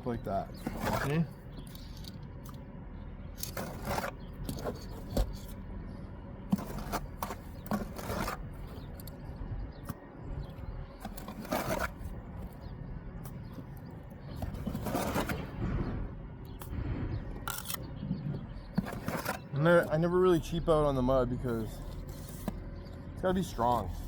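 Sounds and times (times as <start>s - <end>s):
trowel scraping mortar on brick: 0.5s - 2.1s, 3.4s - 5.6s, 6.5s - 8.7s, 11.0s - 12.2s, 14.4s - 15.6s, 18.7s - 20.0s.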